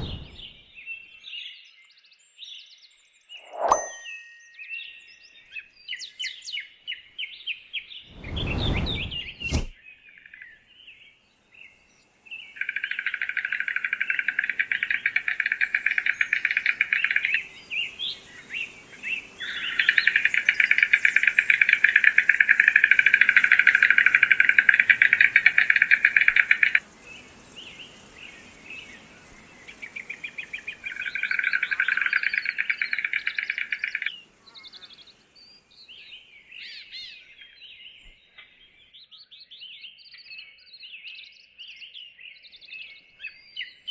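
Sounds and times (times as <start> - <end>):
brief low thump: 0.0 - 0.6.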